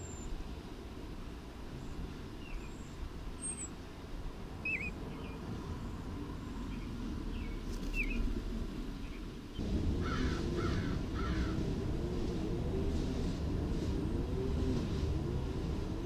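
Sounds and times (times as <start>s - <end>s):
low steady rumble: 0.0s - 16.0s
harsh bird calls: 4.6s - 8.2s, 9.0s - 11.6s.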